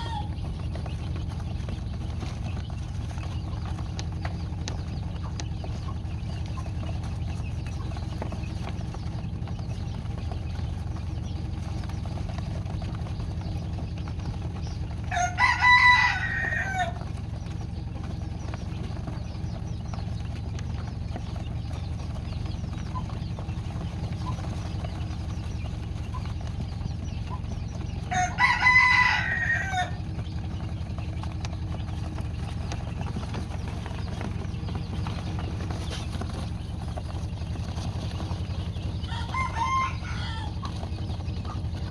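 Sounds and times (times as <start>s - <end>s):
rooster crowing: 0.0s - 0.4s, 15.1s - 17.0s, 28.0s - 30.0s, 39.0s - 40.8s
steady low hum: 0.0s - 41.9s.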